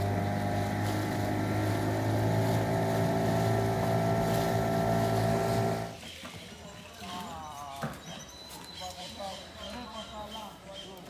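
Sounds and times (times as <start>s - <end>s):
boat engine running: 0.0s - 6.0s.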